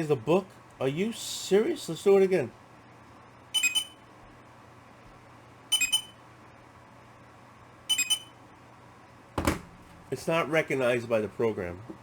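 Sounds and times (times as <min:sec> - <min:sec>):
barcode scanner beeps: 0:03.6 - 0:04.0, 0:05.7 - 0:06.2, 0:07.9 - 0:08.4.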